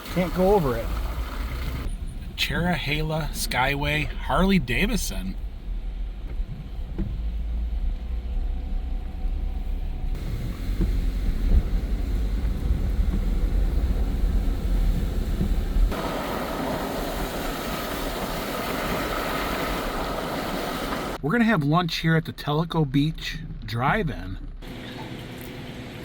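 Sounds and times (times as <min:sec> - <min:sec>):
low road rumble in car: 0:00.0 - 0:21.2
outdoor hiss: 0:10.1 - 0:21.2.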